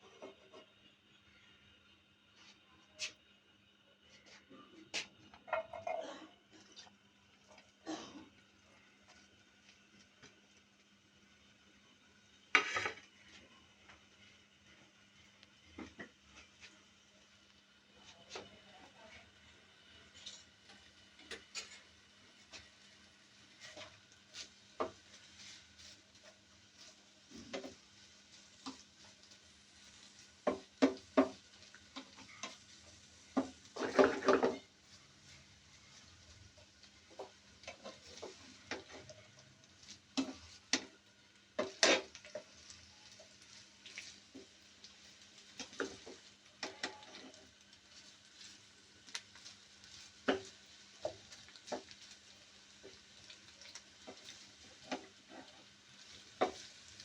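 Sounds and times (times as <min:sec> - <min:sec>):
faint sizzling: 0:00.0 - 0:57.0
utensil scraping a cooking pot: 0:12.5 - 0:13.6, 0:19.9 - 0:57.0.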